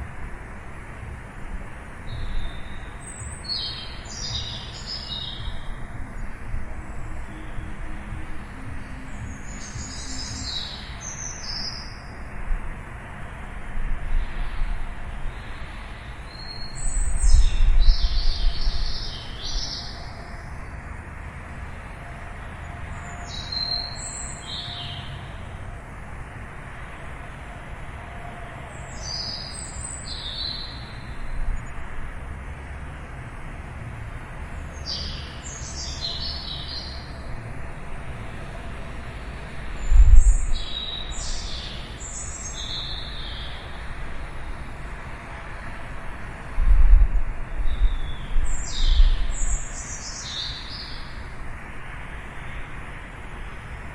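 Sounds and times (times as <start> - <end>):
songbird chirping: 2.0 - 12.5, 14.1 - 25.7, 26.7 - 31.9, 34.6 - 45.7, 47.6 - 52.6.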